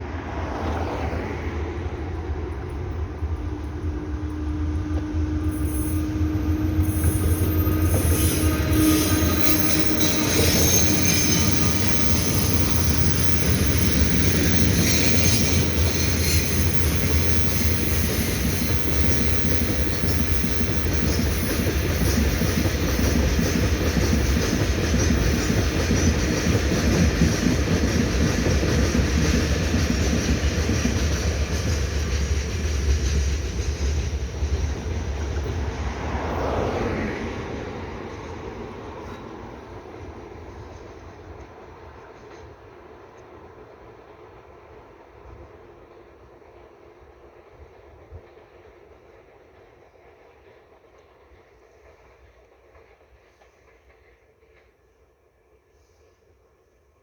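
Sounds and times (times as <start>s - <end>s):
freight train wheel clatter: 1.9s - 43.3s
high wheel squeal: 3.5s - 26.3s.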